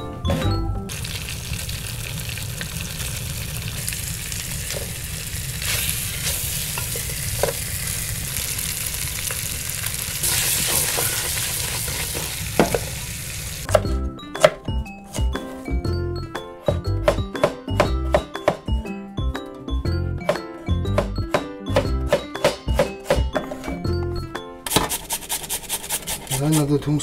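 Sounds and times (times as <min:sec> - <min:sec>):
fish sizzling in a pot: 0:00.9 - 0:13.7
wooden spoon knocking on pot: 0:16.7 - 0:18.7, 0:20.2 - 0:23.5.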